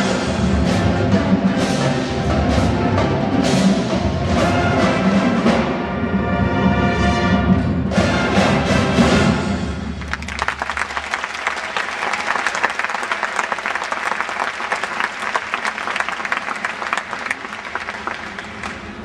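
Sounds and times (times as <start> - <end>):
marching band: 0.0 - 19.0
audience clapping: 9.9 - 19.0.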